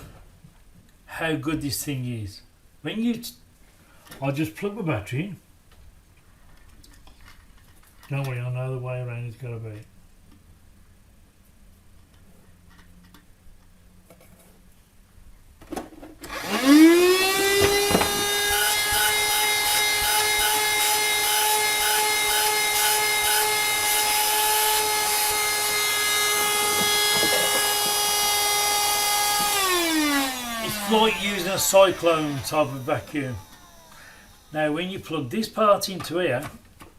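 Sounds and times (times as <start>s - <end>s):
vacuum cleaner motor whine: 16.2s - 35.3s.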